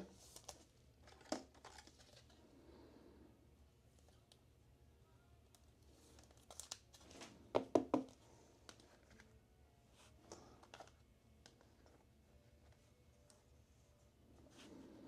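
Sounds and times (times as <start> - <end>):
plastic crinkling and tearing: 6.0 - 7.3.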